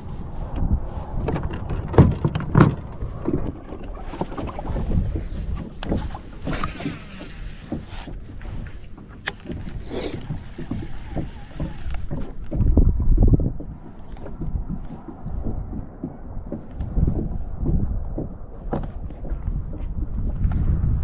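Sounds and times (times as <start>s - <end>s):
knocks of gear in kayak: 1.2s - 13.3s
sharp clicks: 5.7s - 13.3s.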